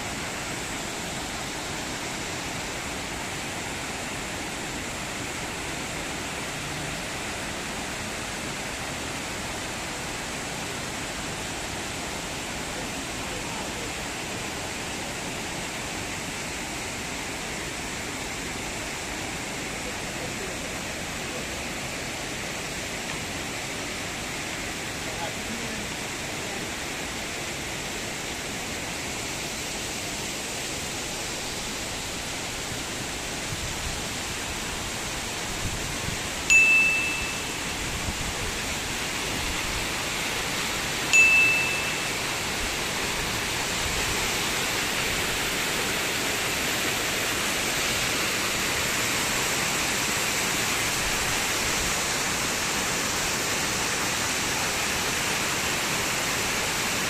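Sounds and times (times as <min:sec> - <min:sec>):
running water: 0:00.0 - 0:57.0
bright ringing chime: 0:36.5 - 0:37.8, 0:41.1 - 0:42.4.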